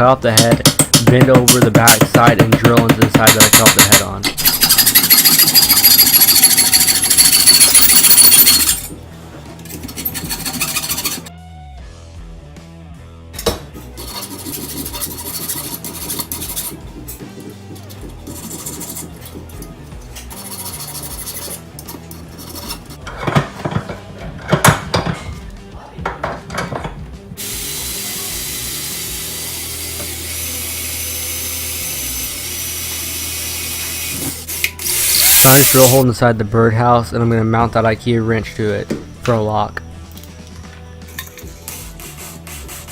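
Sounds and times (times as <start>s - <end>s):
background music: 0.0s - 42.9s
knocks on metal hex wrench: 0.4s - 4.2s
power tool grinding metal: 4.4s - 9.0s, 9.6s - 11.3s, 13.8s - 23.0s, 27.4s - 36.0s
power tool running: 27.4s - 36.0s.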